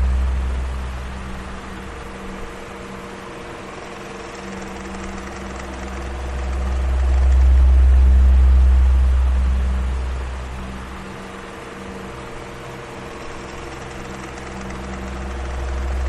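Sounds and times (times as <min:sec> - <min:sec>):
deep rumble: 0:00.0 - 0:02.5, 0:04.5 - 0:11.2
electric fan running: 0:00.0 - 0:16.0.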